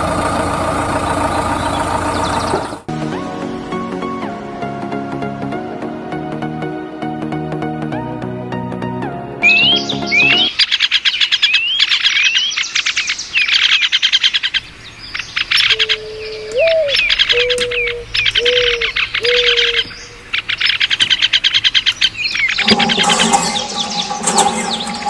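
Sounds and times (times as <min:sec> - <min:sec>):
birds chirping and whistling: 0:14.6 - 0:25.0.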